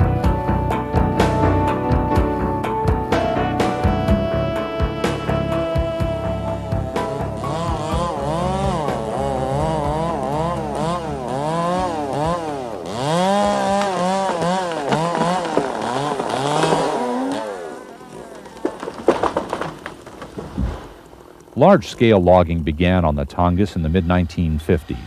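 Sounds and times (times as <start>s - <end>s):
chainsaw revving: 3.2s - 19.7s.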